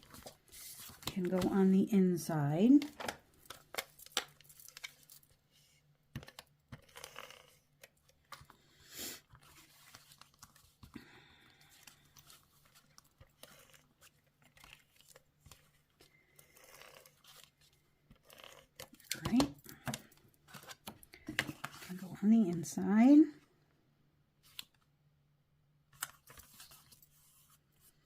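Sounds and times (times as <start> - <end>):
paper rustling and tapping: 0.0 - 1.6.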